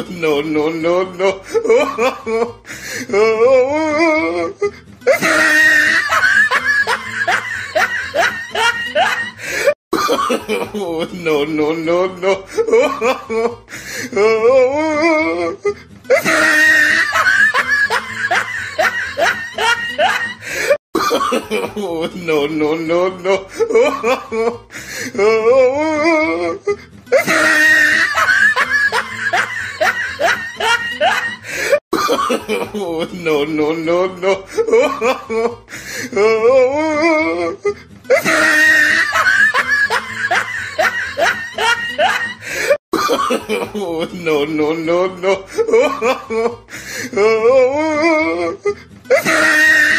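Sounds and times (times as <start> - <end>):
man laughing: 0.0 - 49.9
laughter in rising bursts: 5.1 - 10.8, 15.5 - 21.7, 27.1 - 32.7, 37.5 - 43.6.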